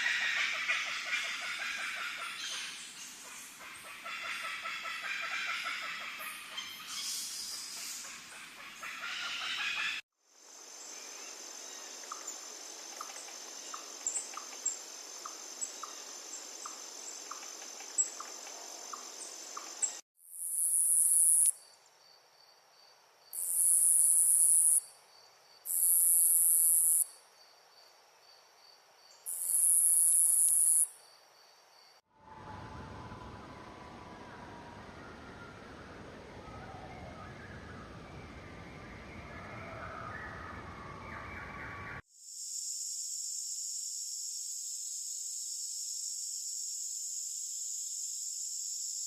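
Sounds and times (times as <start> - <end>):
insect trill: 10.3 - 36.1, 42.1 - 49.0
pulsing insect trill: 10.4 - 27.5, 28.3 - 31.9, 42.1 - 49.0.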